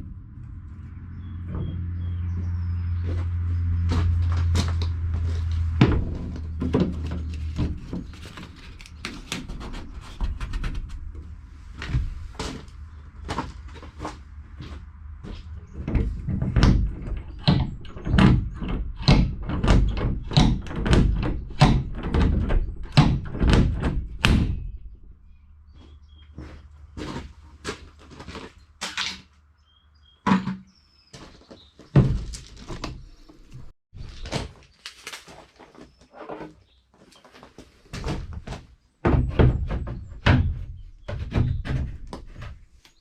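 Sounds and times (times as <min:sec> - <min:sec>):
low hum: 0:00.0 - 0:08.0
knocks and thuds: 0:01.3 - 0:08.2, 0:15.7 - 0:25.0, 0:31.9 - 0:33.0, 0:37.9 - 0:42.6.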